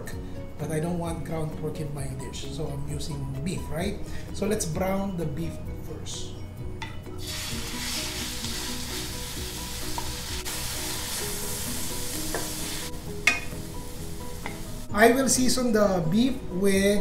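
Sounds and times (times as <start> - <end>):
meat sizzling in hot oil: 7.2 - 14.9.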